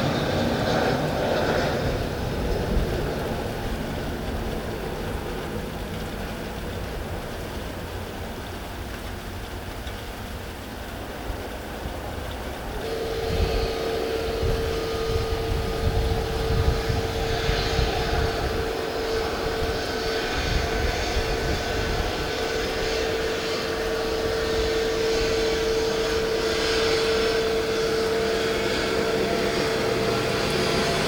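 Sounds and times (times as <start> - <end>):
aircraft engines whine and rumble: 0.0 - 31.0.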